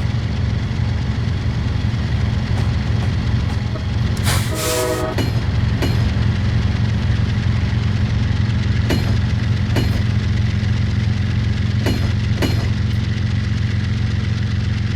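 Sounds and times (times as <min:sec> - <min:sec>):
train horn blast: 0:00.0 - 0:08.0
wheels clicking over rail joints: 0:00.0 - 0:08.2
locomotive engine drone: 0:00.0 - 0:14.9.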